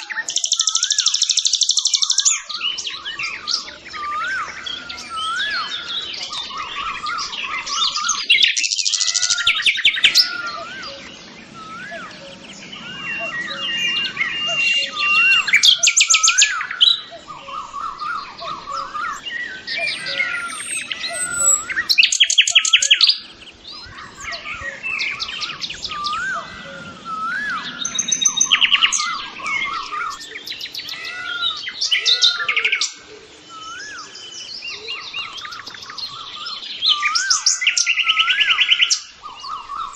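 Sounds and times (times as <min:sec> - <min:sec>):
birds singing and chirping: 0:00.0 - 0:39.9
loud rapid bird trill: 0:00.0 - 0:39.9.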